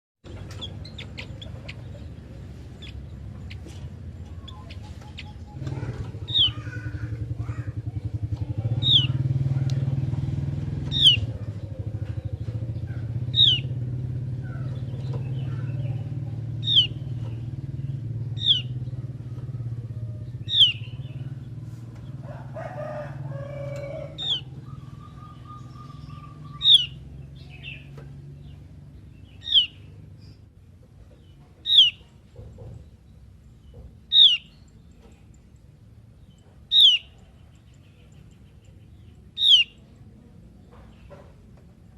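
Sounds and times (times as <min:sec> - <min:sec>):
bird calling sharp notes: 0:00.4 - 0:07.8, 0:08.7 - 0:09.3, 0:10.8 - 0:11.5, 0:13.0 - 0:13.8, 0:16.6 - 0:17.3, 0:18.4 - 0:19.6, 0:20.4 - 0:21.2, 0:22.9 - 0:28.0, 0:29.4 - 0:29.9, 0:31.6 - 0:32.1, 0:34.1 - 0:34.7, 0:36.7 - 0:37.2, 0:39.2 - 0:39.9.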